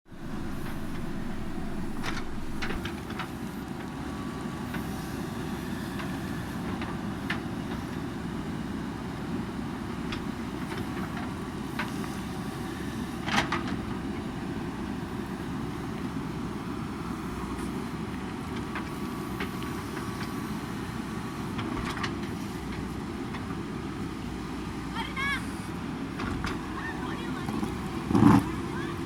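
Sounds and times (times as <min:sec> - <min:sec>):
diesel engine running: 0:00.1 - 0:29.0.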